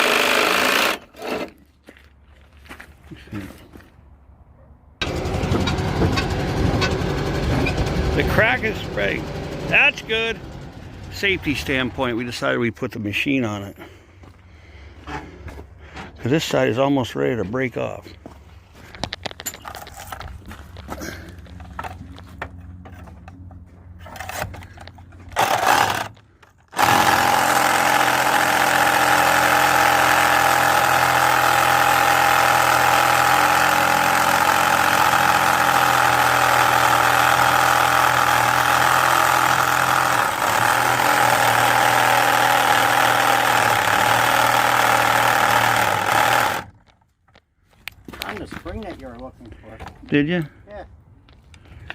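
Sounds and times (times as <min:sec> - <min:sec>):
power tool cutting steel: 0:00.0 - 0:01.5, 0:25.4 - 0:46.7.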